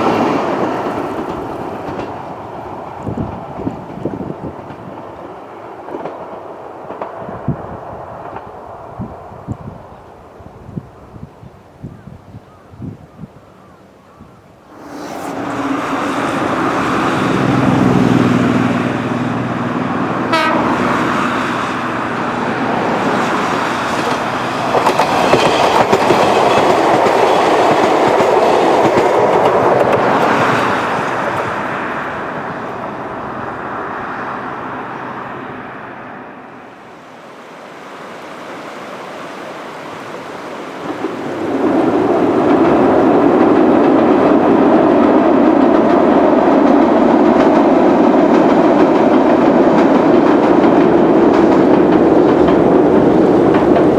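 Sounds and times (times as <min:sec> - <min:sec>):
rail clatter: 0:00.0 - 0:08.8, 0:14.7 - 0:37.0, 0:39.7 - 0:53.9
electric train running: 0:14.7 - 0:36.7, 0:40.8 - 0:53.9.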